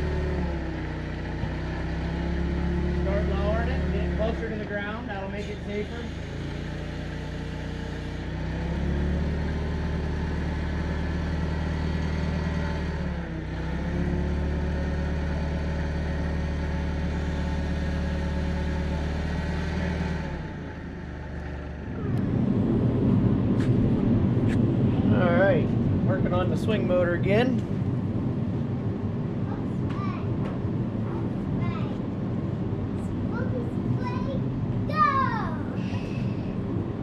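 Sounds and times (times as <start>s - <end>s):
forklift engine running: 0.0s - 37.0s
loud rough noise: 0.0s - 37.0s.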